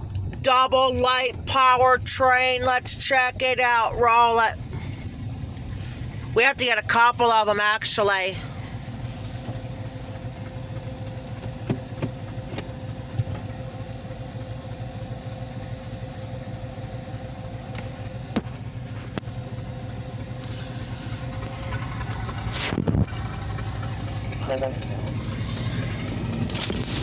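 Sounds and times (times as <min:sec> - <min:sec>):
engine humming: 0:00.0 - 0:27.0.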